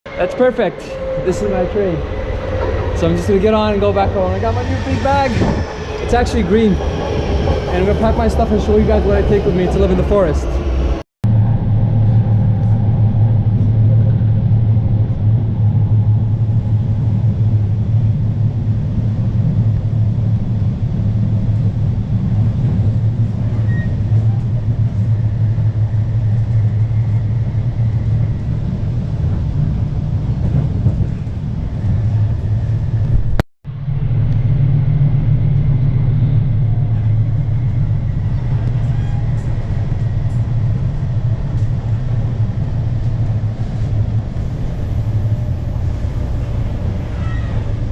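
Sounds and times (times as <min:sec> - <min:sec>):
train rumble inside carriage: 0:00.1 - 0:47.9.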